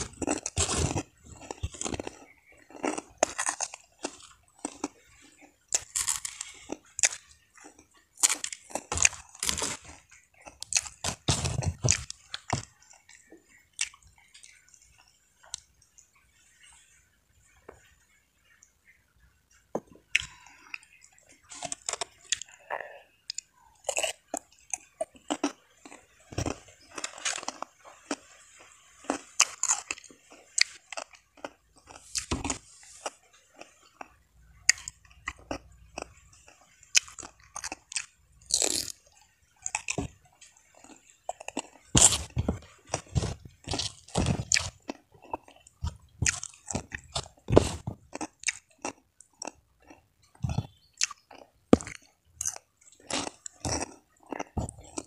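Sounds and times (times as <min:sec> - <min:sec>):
crunchy chewing of cucumber: 0:00.0 - 0:16.6, 0:19.8 - 0:55.0.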